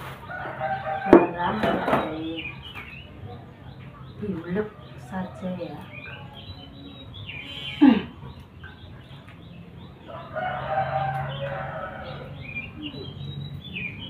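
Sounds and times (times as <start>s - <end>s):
small birds chirping: 0.0s - 14.0s
long bird call: 6.5s - 8.9s.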